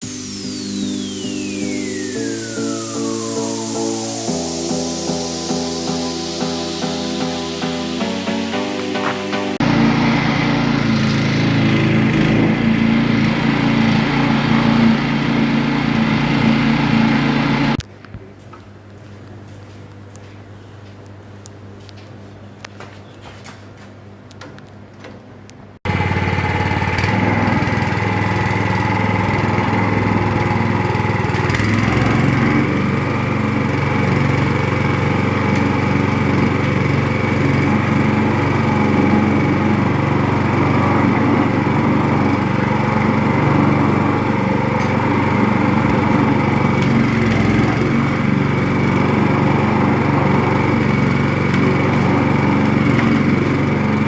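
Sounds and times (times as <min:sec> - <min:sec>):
coconut husk peeling machine humming: 0:09.6 - 0:17.8, 0:25.8 - 0:54.0.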